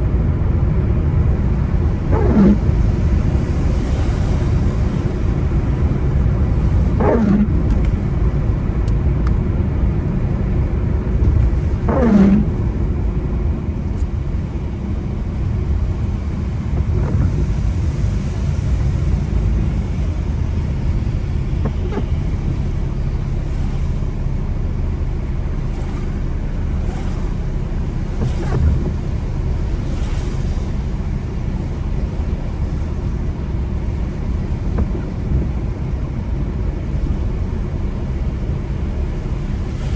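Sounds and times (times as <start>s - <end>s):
car road and engine rumble: 0.0s - 39.9s
windscreen wipers squeaking: 0.7s - 39.9s.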